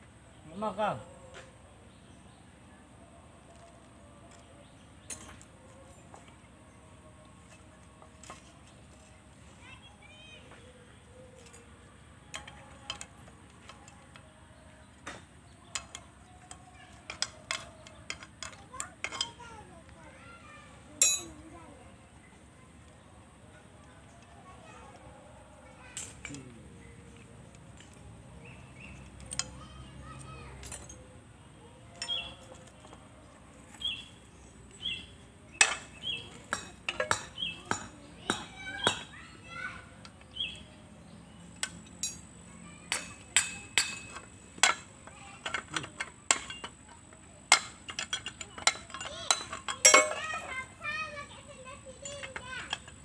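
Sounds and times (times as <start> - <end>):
small metal objects clinking: 21.0 - 21.4, 30.6 - 31.0, 32.0 - 33.0, 35.6 - 39.1, 41.6 - 42.3, 42.9 - 50.9
bird chirping: 32.0 - 32.5.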